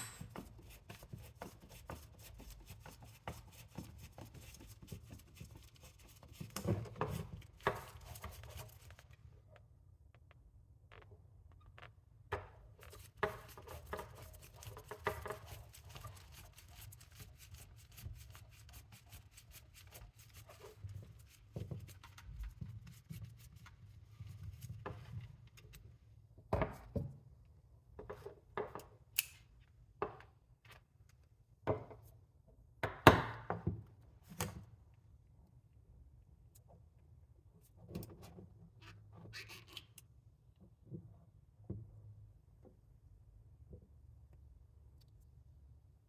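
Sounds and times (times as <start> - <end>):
tool knocks and clatters: 0.0 - 0.6.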